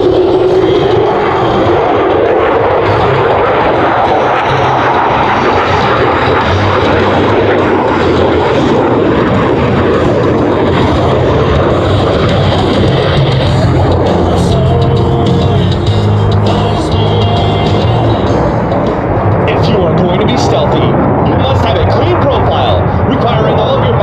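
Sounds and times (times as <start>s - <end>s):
loud jet engine roar: 0.0s - 24.0s.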